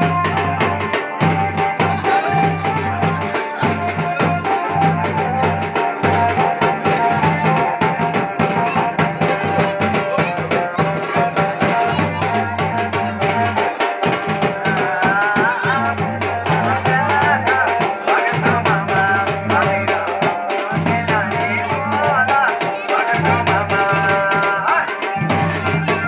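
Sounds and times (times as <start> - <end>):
fast dense drumming: 0.0 - 26.0
held melody line: 0.0 - 26.0.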